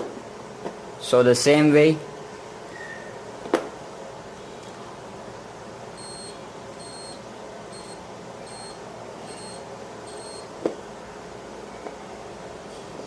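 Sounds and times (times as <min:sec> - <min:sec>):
multimeter high beeps: 0:06.0 - 0:10.5.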